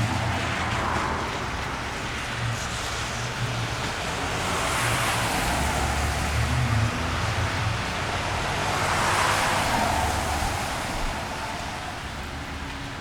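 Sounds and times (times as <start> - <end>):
rain hiss: 0.0 - 13.0
tyre hiss on wet pavement: 0.0 - 13.0.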